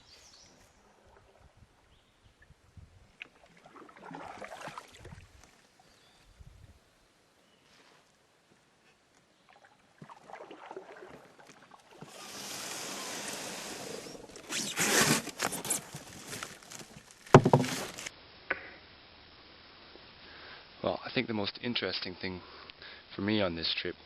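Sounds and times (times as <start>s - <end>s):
paddle strokes splashing: 3.2s - 5.8s, 9.5s - 18.1s
steady water wash: 10.0s - 14.5s.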